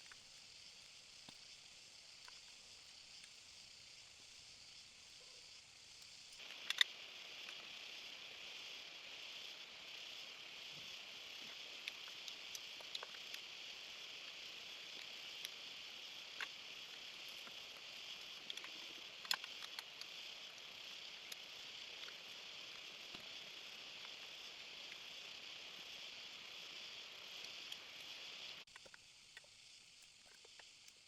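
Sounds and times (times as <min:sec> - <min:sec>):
rainforest insects droning: 0:00.0 - 0:31.0
small clicks and taps: 0:06.0 - 0:07.6, 0:16.4 - 0:20.2, 0:28.7 - 0:31.0.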